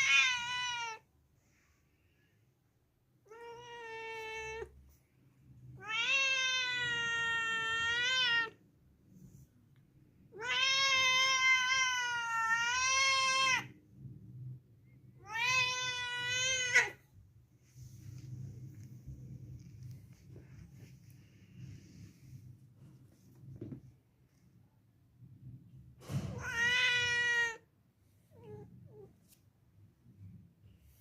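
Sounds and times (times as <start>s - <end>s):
cat meowing: 0.0s - 1.0s, 3.2s - 4.8s, 5.8s - 8.6s, 10.3s - 13.7s, 15.2s - 17.0s, 26.2s - 27.6s.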